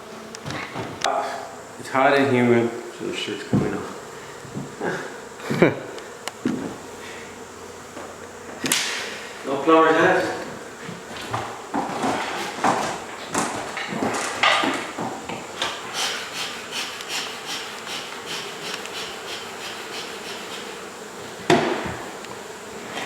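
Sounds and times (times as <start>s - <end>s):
knocking on a wall: 21.5s - 22.0s.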